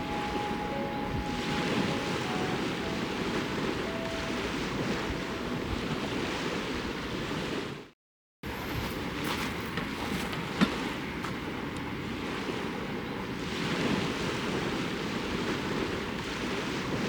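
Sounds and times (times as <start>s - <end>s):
wind on microphone: 0.0s - 7.8s
lake waves washing on shore: 0.0s - 7.9s, 8.5s - 17.0s.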